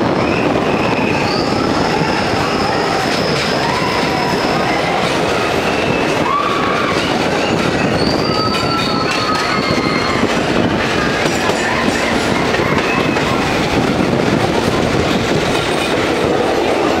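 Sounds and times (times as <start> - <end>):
train rumbling in tunnel: 0.0 - 17.0
high squeals: 0.1 - 13.6.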